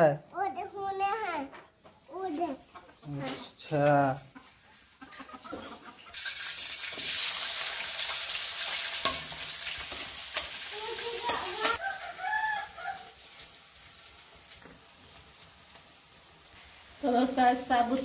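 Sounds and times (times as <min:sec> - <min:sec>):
onions sizzling in hot oil: 0:06.0 - 0:18.0
rooster crowing: 0:11.8 - 0:13.2.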